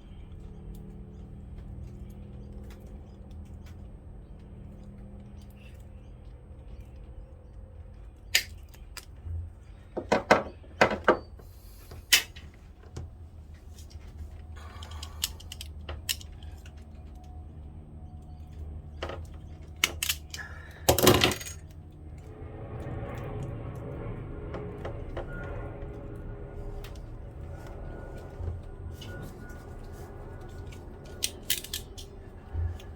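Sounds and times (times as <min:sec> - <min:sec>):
faint low hum: 0:00.0 - 0:32.9
metal tools clinking: 0:20.0 - 0:21.6.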